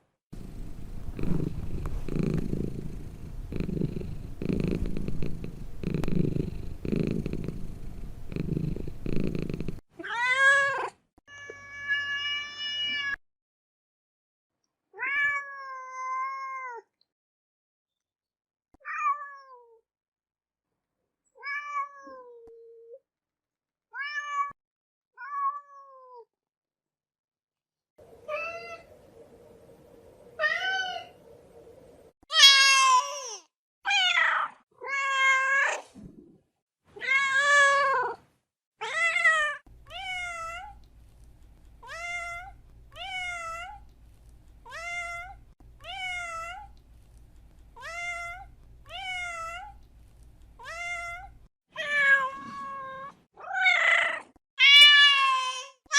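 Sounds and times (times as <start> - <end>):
low hum: 0.4 - 9.8.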